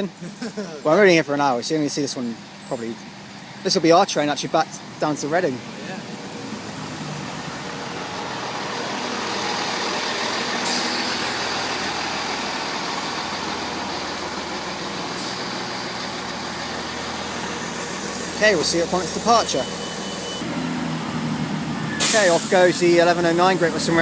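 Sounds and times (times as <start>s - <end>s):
diesel train engines running: 0.0s - 24.0s
short high hisses: 22.0s - 22.6s.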